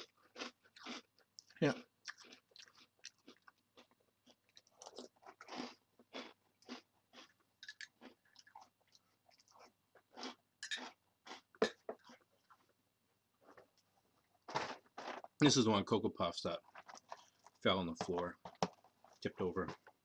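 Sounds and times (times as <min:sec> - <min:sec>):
person crunching cereal: 0:00.0 - 0:12.6, 0:16.6 - 0:17.7.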